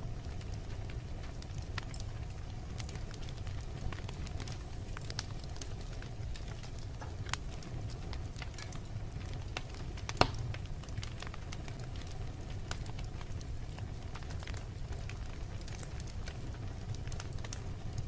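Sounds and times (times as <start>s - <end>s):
fire crackling: 0.0s - 18.0s
low rumble of flame: 0.0s - 18.0s
loud sharp fire pop: 10.1s - 10.6s.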